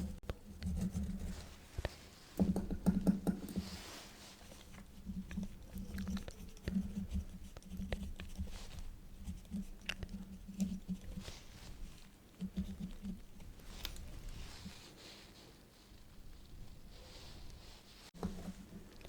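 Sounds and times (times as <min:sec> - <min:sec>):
quill pen scratching paper: 0:00.0 - 0:01.5, 0:04.6 - 0:11.5.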